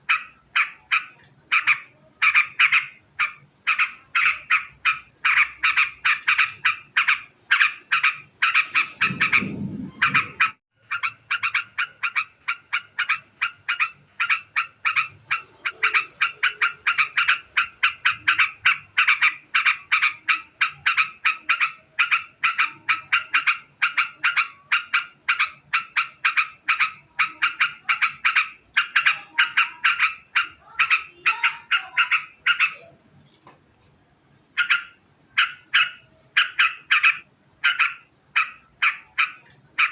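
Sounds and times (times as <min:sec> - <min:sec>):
bird chattering call: 0:00.0 - 0:32.9, 0:34.6 - 0:39.9
low rumble: 0:08.8 - 0:10.6.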